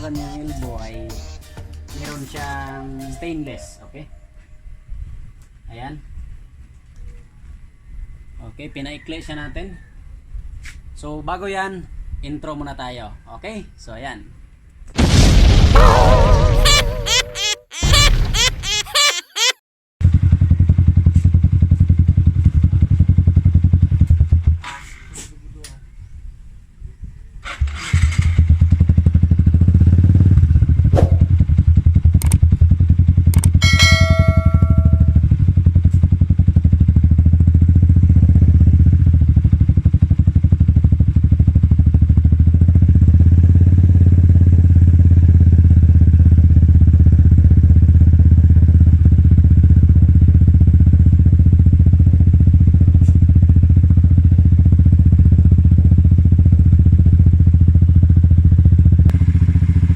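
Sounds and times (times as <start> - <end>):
metallic ding: 33.6 - 35.4.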